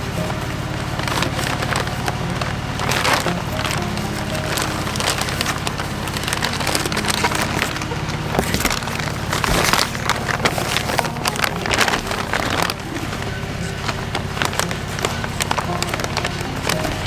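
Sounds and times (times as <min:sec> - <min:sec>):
sewing machine running: 0:00.0 - 0:17.0
stiff material crinkling: 0:00.0 - 0:17.0.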